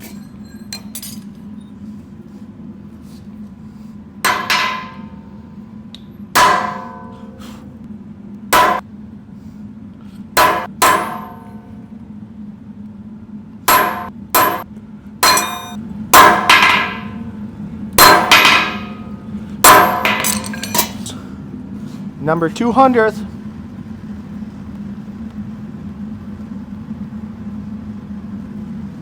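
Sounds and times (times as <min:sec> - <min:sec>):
low hum: 0:00.0 - 0:29.0
hammer striking steel on anvil: 0:04.2 - 0:05.3, 0:06.4 - 0:07.6, 0:08.6 - 0:08.9, 0:10.4 - 0:11.8, 0:13.7 - 0:17.3, 0:18.0 - 0:21.2.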